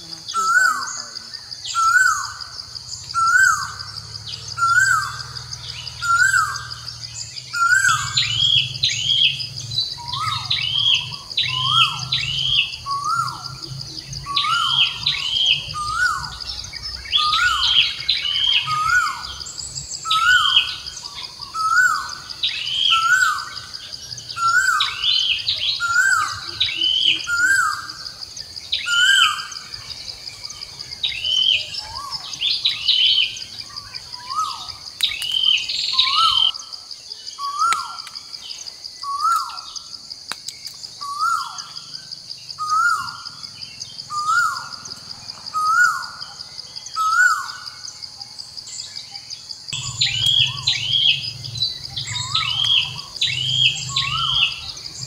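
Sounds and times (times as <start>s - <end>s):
birds calling with sliding notes: 0.0s - 55.0s
high-pitched drone: 49.8s - 55.0s.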